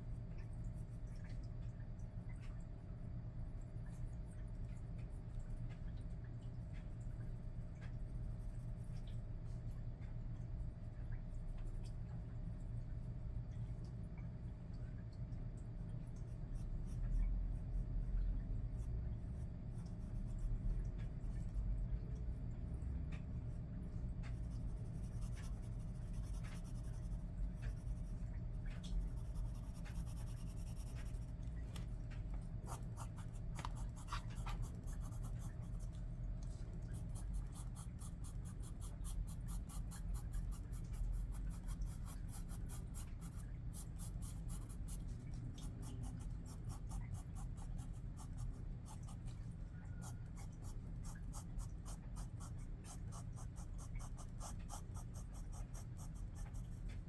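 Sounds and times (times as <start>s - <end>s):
steady low hum: 0.0s - 57.0s
pencil scratching on paper: 24.4s - 28.2s, 29.0s - 31.3s, 32.6s - 35.9s, 36.9s - 45.0s, 50.0s - 56.7s.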